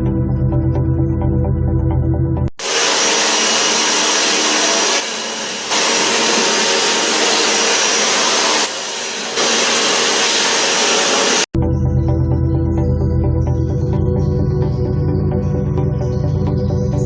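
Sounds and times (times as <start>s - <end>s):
pressure washer spray hissing: 2.6s - 11.5s.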